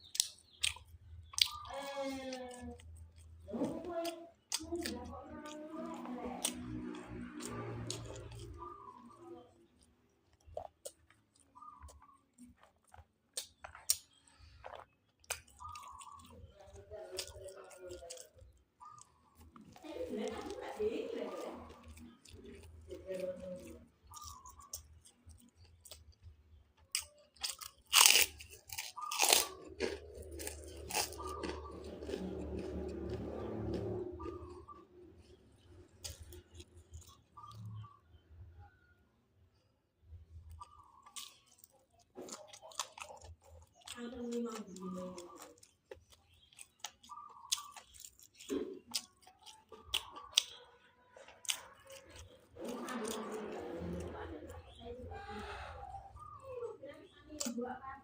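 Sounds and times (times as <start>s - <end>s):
mouth clicks and lip smacks: 0.0s - 1.7s
person crunching and chewing food: 0.0s - 38.2s, 40.1s - 56.6s, 57.2s - 57.6s.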